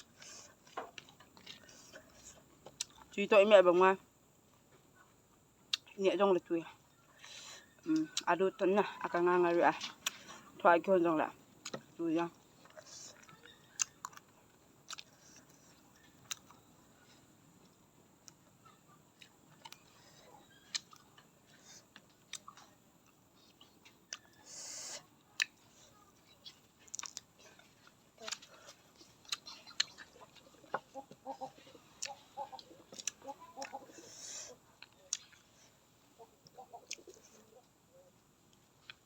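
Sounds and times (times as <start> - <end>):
crunching raw vegetables: 0.0 - 3.6, 7.1 - 35.8.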